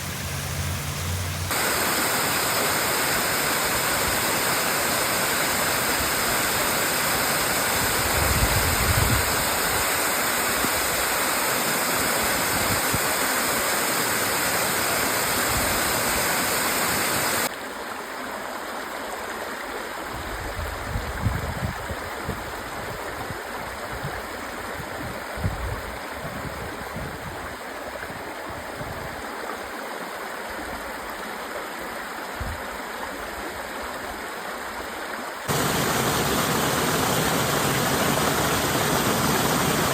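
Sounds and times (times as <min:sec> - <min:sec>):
waterfall rushing: 0:00.0 - 0:17.5, 0:35.5 - 0:39.9.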